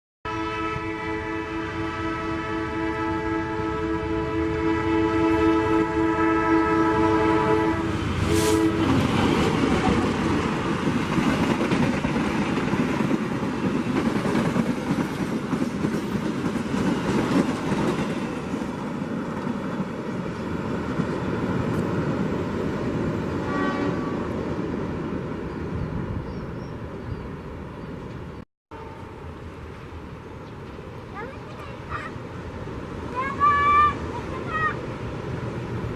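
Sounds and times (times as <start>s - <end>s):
train horn: 0.2s - 9.4s, 23.3s - 24.5s, 28.7s - 29.4s
train wheels rumbling on rails: 3.2s - 35.9s.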